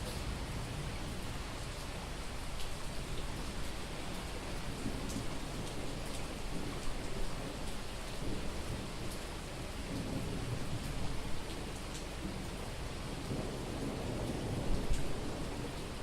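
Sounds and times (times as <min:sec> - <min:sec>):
heavy rain pouring: 0:00.0 - 0:16.0
low thunder rumble: 0:04.4 - 0:16.0.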